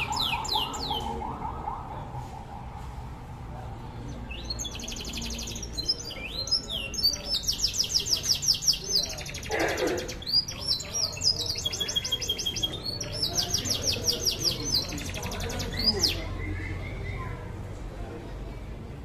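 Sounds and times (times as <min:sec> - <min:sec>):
canary singing trills: 0:00.0 - 0:01.2, 0:04.2 - 0:17.4.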